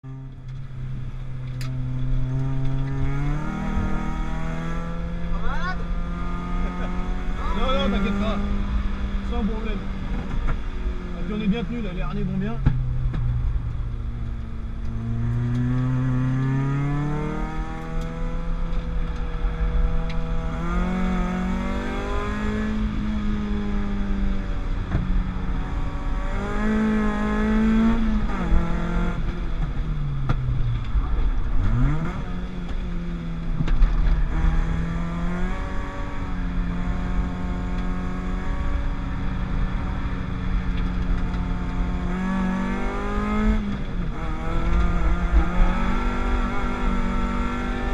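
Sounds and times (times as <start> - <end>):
race car engine revving: 0.0 - 47.9.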